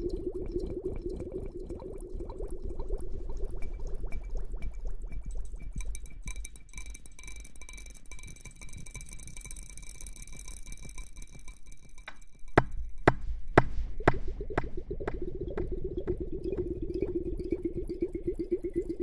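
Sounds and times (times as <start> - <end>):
soft ticking: 0.0 - 19.0
sharp evenly spaced taps: 5.3 - 18.9.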